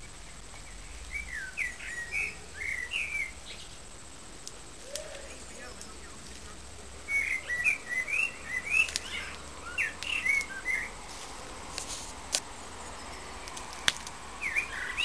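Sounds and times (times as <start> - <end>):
bird whistled chirps: 0.5 - 3.8, 7.0 - 10.9, 14.4 - 15.0
sharp clicks: 8.8 - 10.6.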